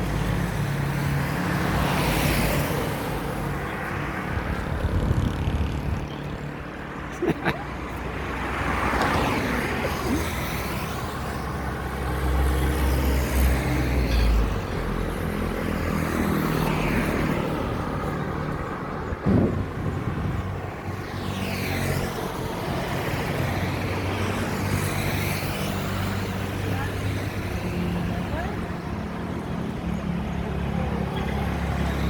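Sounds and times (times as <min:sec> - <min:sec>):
motor vehicle rumble: 0:00.0 - 0:25.0.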